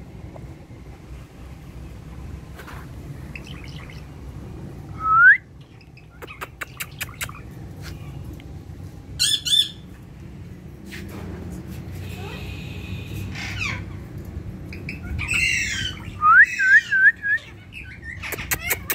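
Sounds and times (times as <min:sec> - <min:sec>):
parrot squawks: 0:09.2 - 0:09.8, 0:14.8 - 0:18.9
parrot rising whistle: 0:15.5 - 0:17.4.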